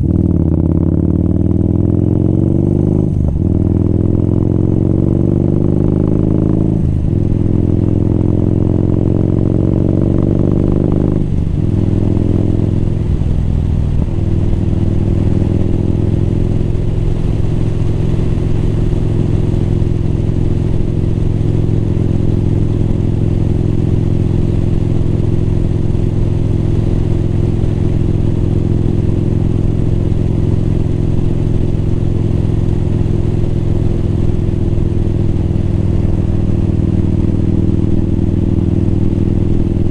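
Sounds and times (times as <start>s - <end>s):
motorcycle engine shifting gears: 0.0s - 39.9s.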